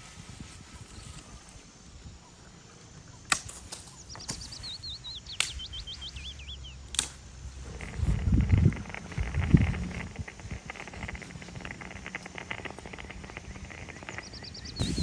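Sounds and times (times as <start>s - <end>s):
wind rumble on microphone: 0.0s - 2.3s, 7.4s - 15.0s
songbird chirping: 1.0s - 15.0s
sharp cracks: 6.9s - 15.0s.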